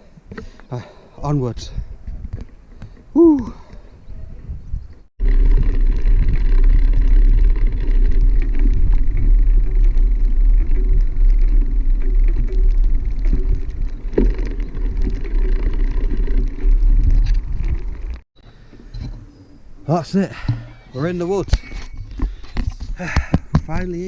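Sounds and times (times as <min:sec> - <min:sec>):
wind rumble on microphone: 0:01.6 - 0:18.2
tyres running over rough ground: 0:05.2 - 0:24.0.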